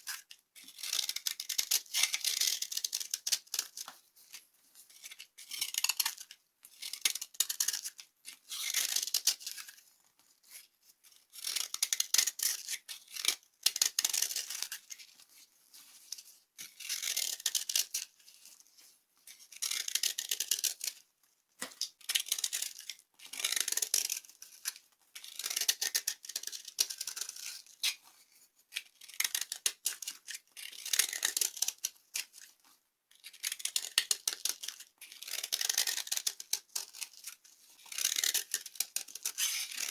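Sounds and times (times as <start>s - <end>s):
dry soap crunching: 33.5s - 39.9s.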